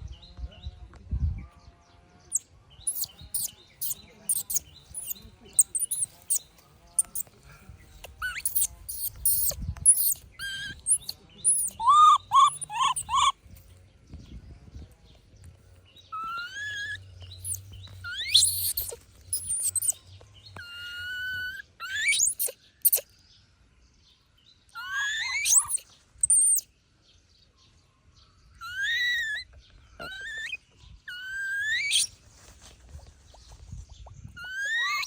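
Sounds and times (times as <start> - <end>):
young monkey crying: 2.3 - 6.4, 7.0 - 7.3, 8.1 - 13.4, 16.2 - 20.0, 20.6 - 23.0, 24.8 - 26.6, 28.6 - 32.1, 34.4 - 35.0.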